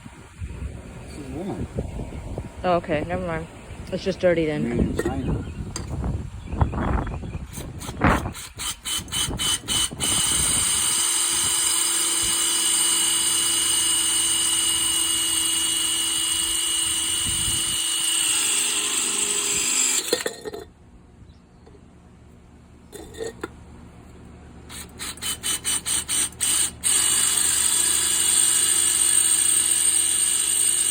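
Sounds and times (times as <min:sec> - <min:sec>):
electric drill boring: 0:07.6 - 0:20.3, 0:24.7 - 0:30.9.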